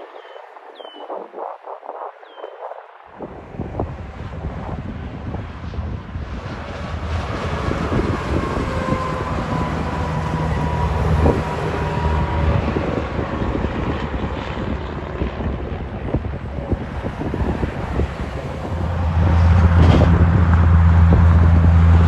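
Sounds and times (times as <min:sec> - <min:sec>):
wind buffeting microphone: 0:00.0 - 0:22.0
truck driving past: 0:06.4 - 0:15.0, 0:17.1 - 0:22.0
thin steady whine: 0:06.6 - 0:15.0.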